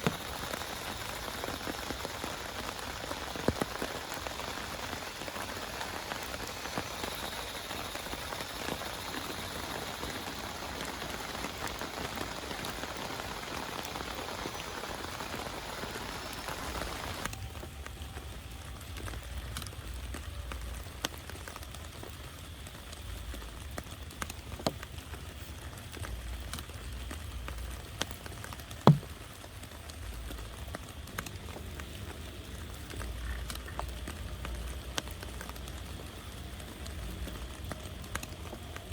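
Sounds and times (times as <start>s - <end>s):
heavy rain pattering: 0.0s - 38.9s
loud knock: 28.9s - 29.1s
sharp drips: 28.9s - 29.2s.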